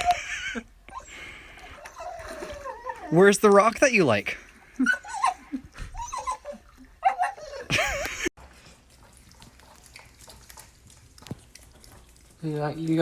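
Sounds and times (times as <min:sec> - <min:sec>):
dog whining: 0:00.9 - 0:03.3, 0:04.8 - 0:07.7.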